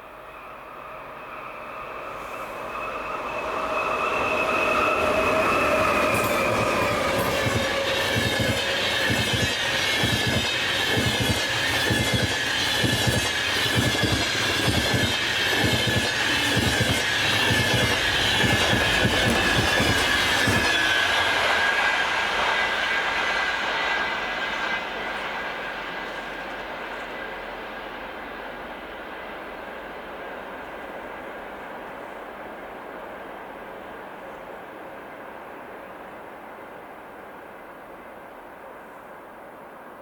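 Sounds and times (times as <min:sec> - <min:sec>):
train passing: 0:00.0 - 0:40.0
high wheel squeal: 0:01.3 - 0:24.8
wheels clacking over rail joints: 0:05.1 - 0:22.6.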